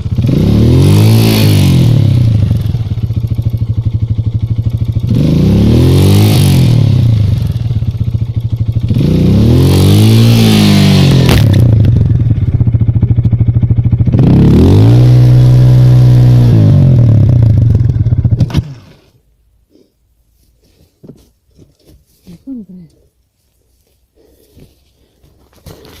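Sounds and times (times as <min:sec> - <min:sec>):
motorcycle engine revving: 0:00.0 - 0:19.1.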